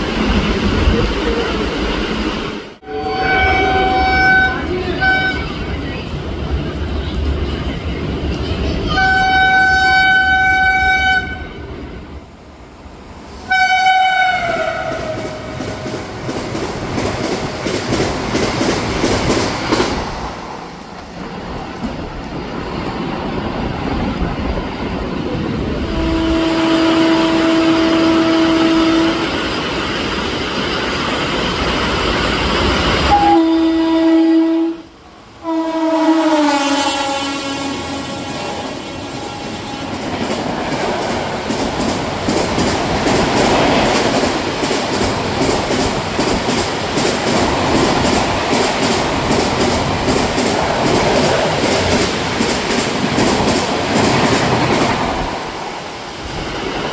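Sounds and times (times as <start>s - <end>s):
train coaches rushing by: 0.0s - 34.1s, 35.0s - 56.9s
train horn blasts: 2.8s - 5.6s, 8.9s - 11.6s, 13.5s - 15.6s, 25.8s - 29.4s, 33.1s - 40.0s.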